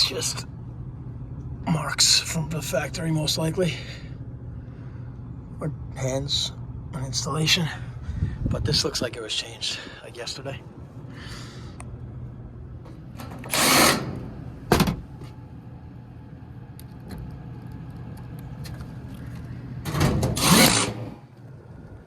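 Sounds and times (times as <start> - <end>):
hvac unit humming: 0.0 - 22.0
loud bursts of noise: 20.0 - 21.3.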